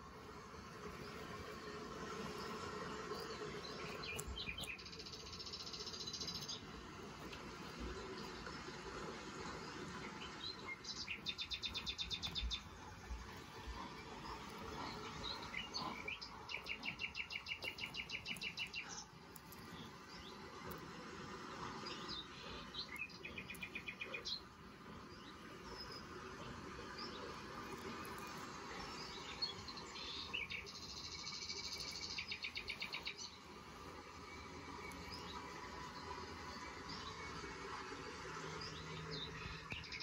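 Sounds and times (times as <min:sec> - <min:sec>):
bird trilling and chirping: 0:03.1 - 0:06.6, 0:10.2 - 0:12.9, 0:14.0 - 0:19.9.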